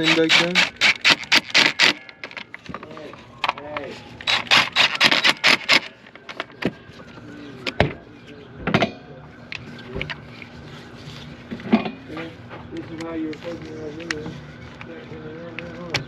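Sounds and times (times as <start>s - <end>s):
tools clicking and knocking: 0.0s - 6.5s.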